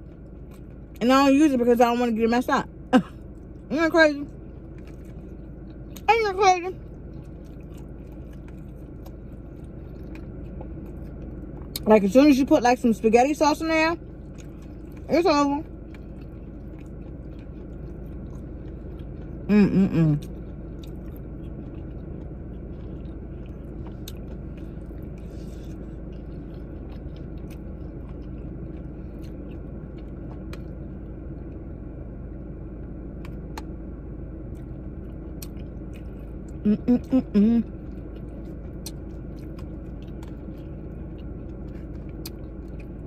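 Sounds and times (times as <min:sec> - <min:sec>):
person chewing: 0:00.0 - 0:01.0, 0:04.3 - 0:06.1, 0:06.8 - 0:11.9, 0:14.0 - 0:31.6, 0:34.5 - 0:43.0
low hum in a car cabin: 0:00.0 - 0:43.0.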